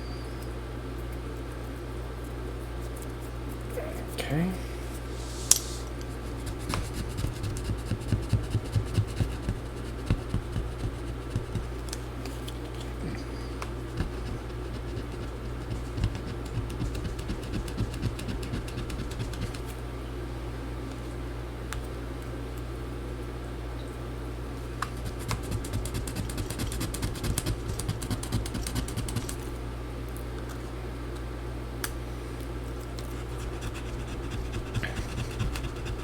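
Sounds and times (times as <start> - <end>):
steady low hum: 0.0 - 36.0
tool scraping plastic: 13.6 - 19.6.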